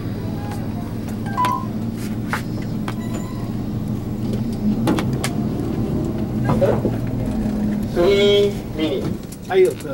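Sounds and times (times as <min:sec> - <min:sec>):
car engine running: 0:00.0 - 0:09.9
high beep: 0:01.2 - 0:01.7, 0:03.0 - 0:03.5.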